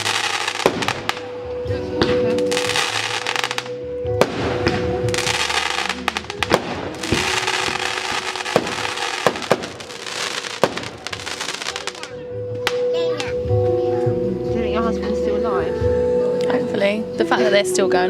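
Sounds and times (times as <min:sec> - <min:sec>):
dense firework crackling: 0:00.0 - 0:01.4, 0:02.1 - 0:12.2
firework shells bursting: 0:00.0 - 0:01.4, 0:02.6 - 0:12.0.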